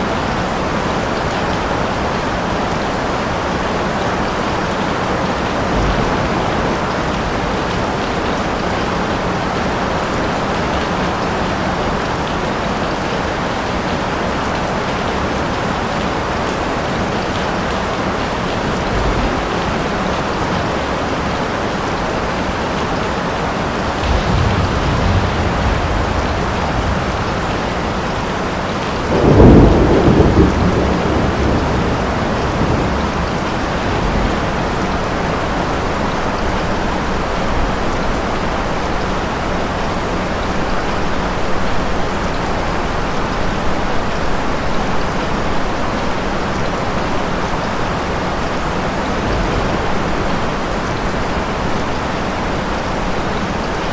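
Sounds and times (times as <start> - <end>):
heavy rain falling: 0.0 - 53.9
low roll of thunder: 3.8 - 10.8, 16.8 - 22.4, 23.3 - 39.6, 43.7 - 53.3
loud thunderclap: 4.1 - 10.8, 17.0 - 21.8, 23.4 - 38.2, 47.2 - 53.1.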